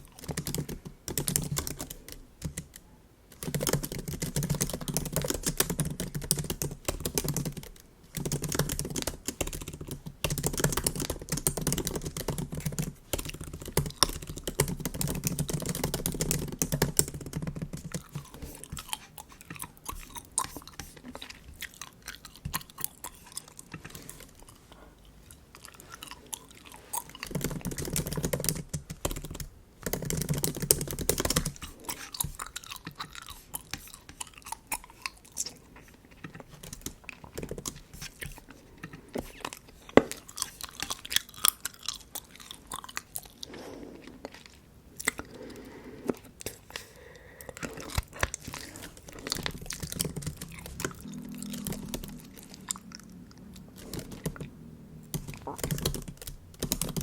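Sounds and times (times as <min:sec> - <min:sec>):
keyboard typing clicks: 0:00.2 - 0:18.3, 0:27.2 - 0:31.6, 0:49.2 - 0:57.0
gum chewing: 0:03.4 - 0:29.3, 0:30.2 - 0:57.0.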